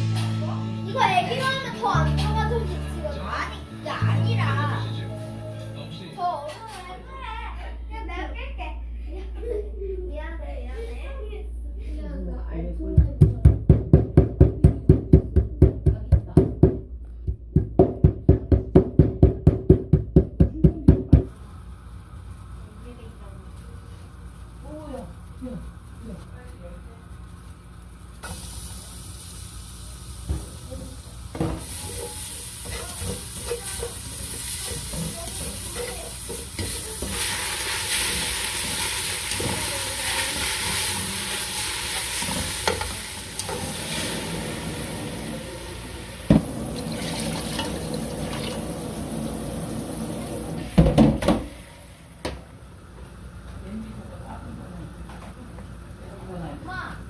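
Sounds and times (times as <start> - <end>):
utensil knocking on pan: 13.0 - 21.3
food sizzling in a frying pan: 27.0 - 52.1.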